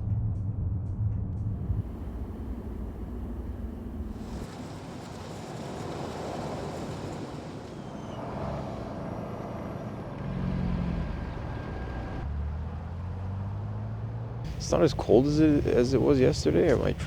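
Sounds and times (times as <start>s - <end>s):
car engines running: 1.3s - 17.0s
steady rushing hiss: 14.5s - 17.0s.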